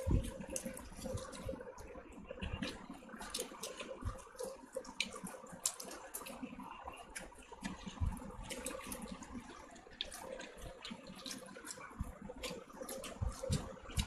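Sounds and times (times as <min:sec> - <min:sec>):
chewing soft wet food: 0:00.0 - 0:14.0.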